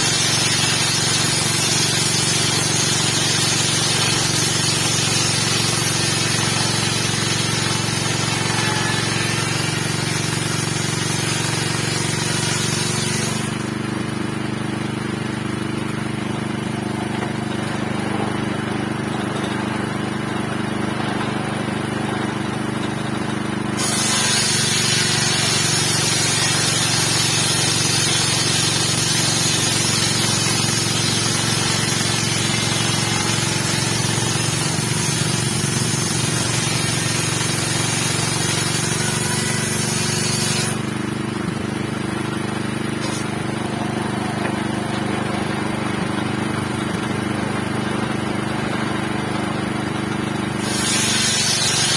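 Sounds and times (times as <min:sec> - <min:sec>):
saw blade cutting wood: 0:00.0 - 0:13.9, 0:23.8 - 0:41.6, 0:42.5 - 0:46.5, 0:50.5 - 0:51.9
circular saw engine running: 0:00.0 - 0:51.9.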